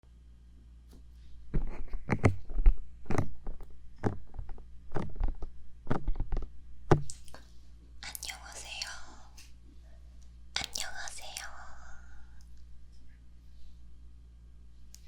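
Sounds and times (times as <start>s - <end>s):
fingertips tapping on microphone: 1.5s - 7.2s.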